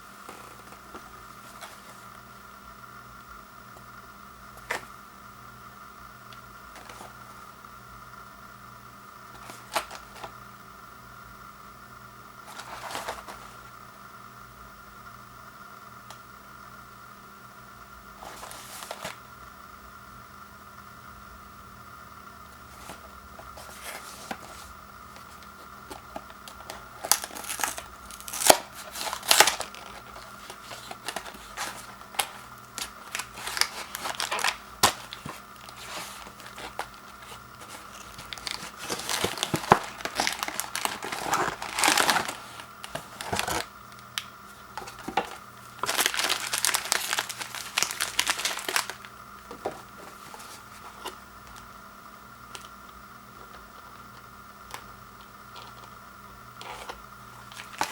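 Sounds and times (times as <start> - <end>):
crinkly wrappers rustling: 22.7 - 43.7, 44.5 - 51.7, 53.4 - 55.9, 56.6 - 57.9
cardboard box tearing: 27.0 - 43.7, 44.8 - 49.0.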